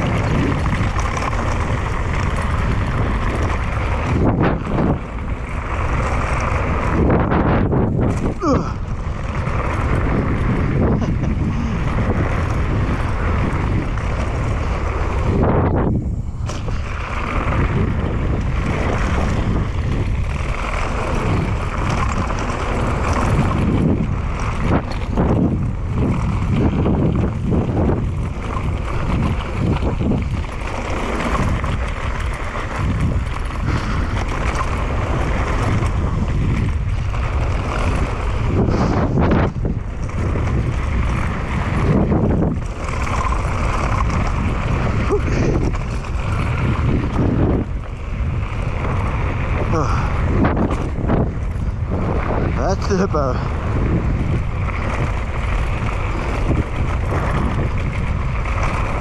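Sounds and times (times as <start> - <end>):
bike rattling over rough trail: 0.0 - 59.0
wind rushing over microphone: 0.0 - 59.0.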